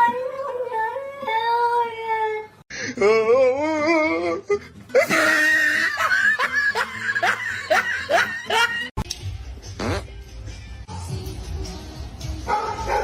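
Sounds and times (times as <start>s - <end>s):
background music: 3.5s - 13.0s
person laughing: 4.5s - 8.9s.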